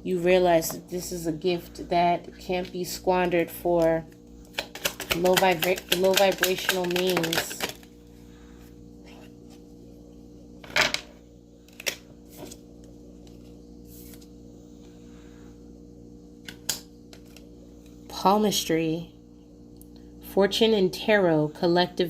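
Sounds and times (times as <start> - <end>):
low electrical hum: 0.0 - 22.0
cards tapping and clicking: 4.5 - 7.8.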